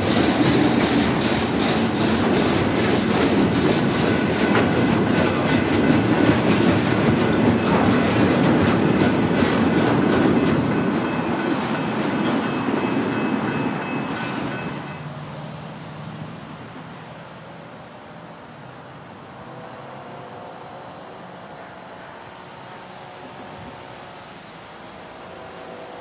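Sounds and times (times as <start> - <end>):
train wheels rumbling and clicking: 0.0 - 14.9
high-pitched wheel squeals: 9.2 - 15.1.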